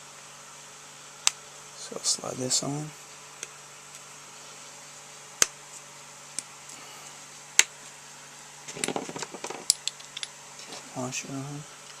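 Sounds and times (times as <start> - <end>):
faint steady hum: 0.0 - 12.0
small metal clinks and rattles: 8.7 - 10.8.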